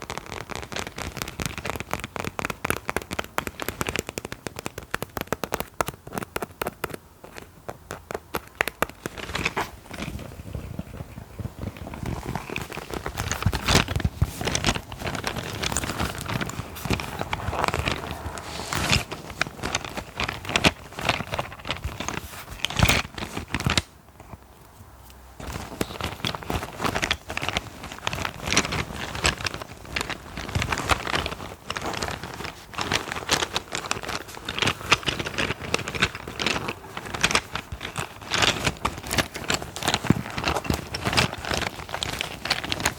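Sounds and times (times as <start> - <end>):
crinkly scratching with ticks: 0.0 - 42.9
loud scrapes: 14.3 - 20.3.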